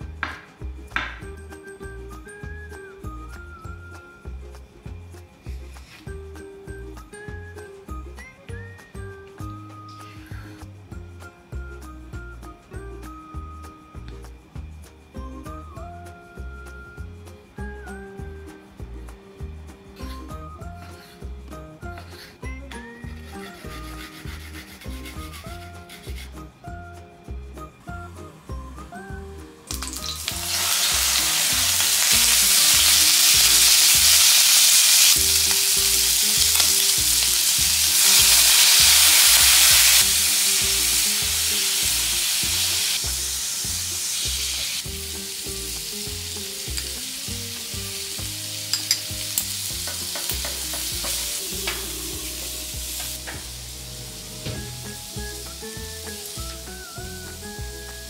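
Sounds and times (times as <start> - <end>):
food sizzling in frying pan: 29.7 - 58.0.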